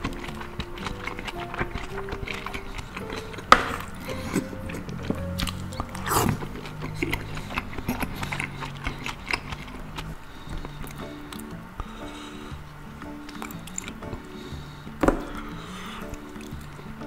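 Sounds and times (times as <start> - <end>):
background music: 0.0 - 17.0
chewing and wet slurping: 0.0 - 17.0.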